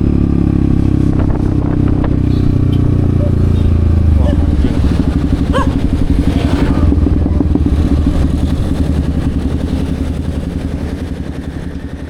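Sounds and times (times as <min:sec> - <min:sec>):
motorcycle engine running steadily: 0:00.0 - 0:12.0.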